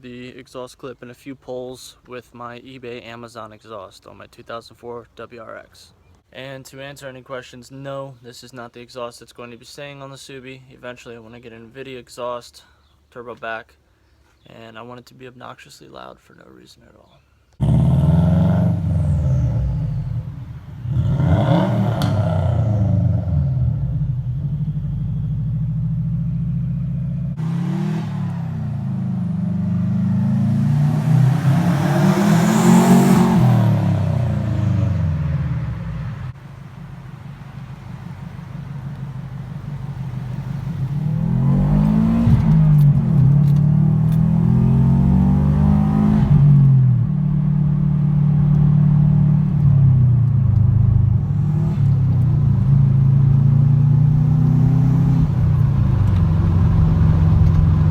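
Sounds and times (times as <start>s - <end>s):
turbocharged car engine revving: 17.6s - 57.9s.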